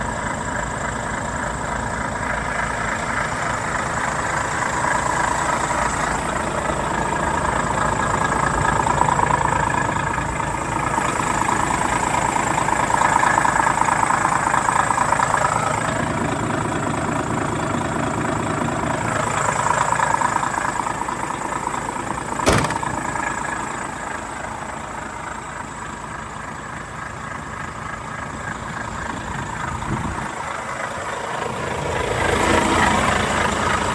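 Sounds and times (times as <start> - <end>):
diesel truck idling: 0.0 - 33.9
sharp knock: 22.4 - 23.0.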